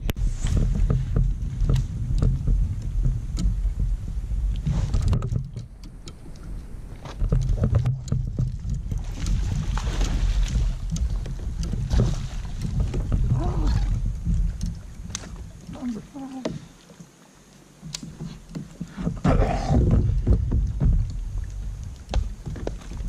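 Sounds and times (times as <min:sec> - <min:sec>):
wind rumbling on microphone: 0:00.0 - 0:17.2, 0:17.8 - 0:23.0
swishing water: 0:00.0 - 0:23.0
small clicks and knocks: 0:04.6 - 0:09.4, 0:17.8 - 0:18.9.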